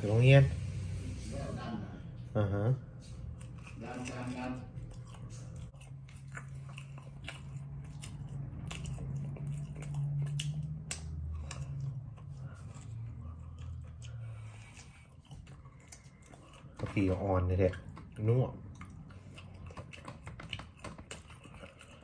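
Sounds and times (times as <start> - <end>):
chewing and gnawing on rib: 2.9 - 22.0
wet mouth clicks and smacks: 4.9 - 12.1.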